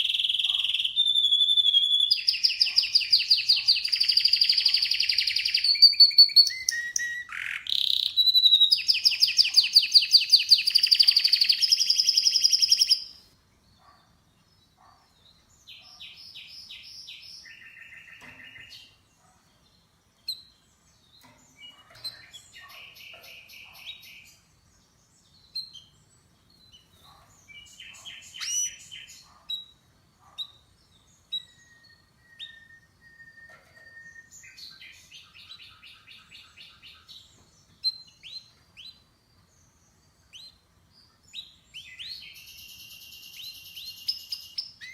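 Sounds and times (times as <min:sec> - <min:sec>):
canary singing: 0:00.0 - 0:14.0, 0:26.6 - 0:37.2, 0:41.4 - 0:44.9.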